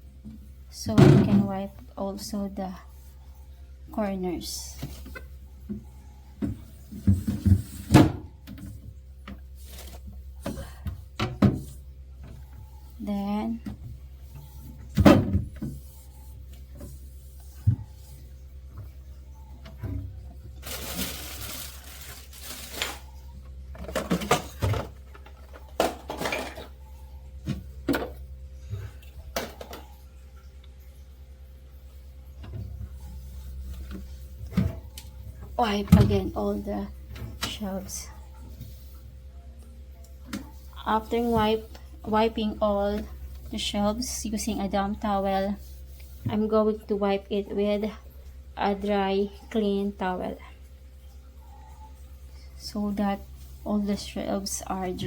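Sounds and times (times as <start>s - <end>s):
low steady hum: 0.0s - 55.0s
refrigerator shelves knocking and clinking: 0.8s - 1.7s, 23.7s - 26.8s
refrigerator shelf knocks and scrapes: 6.4s - 8.8s.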